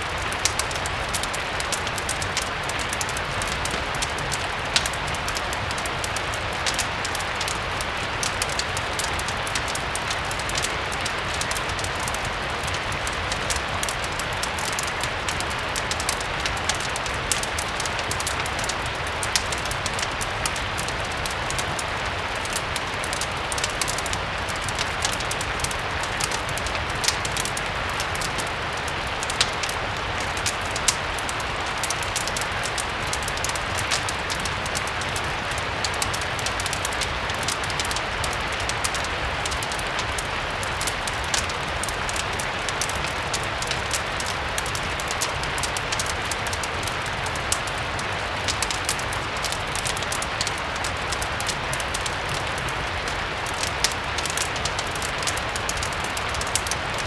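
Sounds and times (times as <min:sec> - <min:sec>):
fireplace crackling: 0:00.0 - 0:57.0
steady rain: 0:00.0 - 0:57.0.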